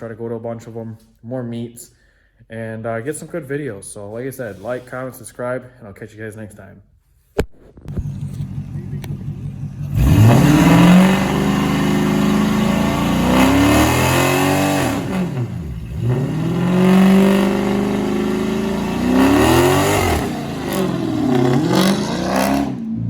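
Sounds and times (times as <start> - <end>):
vehicle engine revving hard: 8.0 - 23.0.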